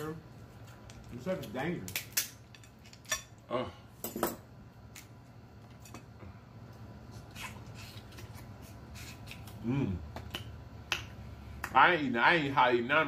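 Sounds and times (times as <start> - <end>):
people chewing and lip smacking: 6.2 - 11.7.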